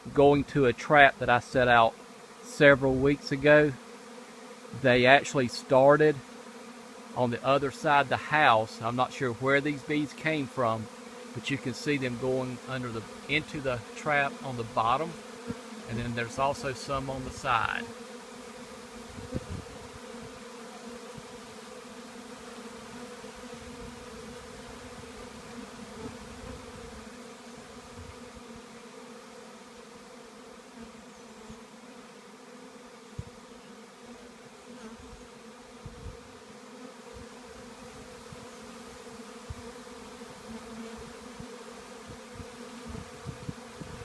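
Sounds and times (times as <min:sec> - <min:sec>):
bees buzzing: 0:00.0 - 0:44.0.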